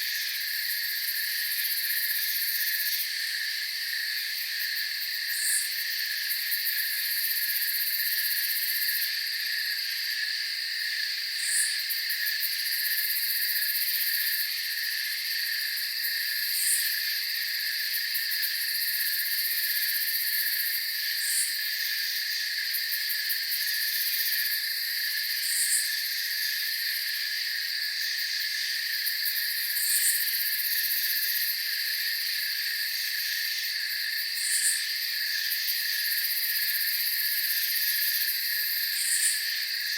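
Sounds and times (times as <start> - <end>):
crickets trilling: 0.0 - 39.9
short high cricket chirp: 32.8 - 39.9.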